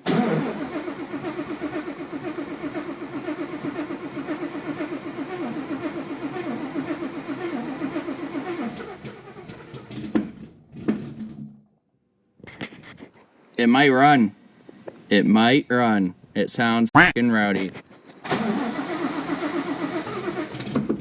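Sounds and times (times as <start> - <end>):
engine clicks: 0.0 - 11.5, 17.6 - 21.0
engine starting and running rough: 0.0 - 11.7, 18.2 - 21.0.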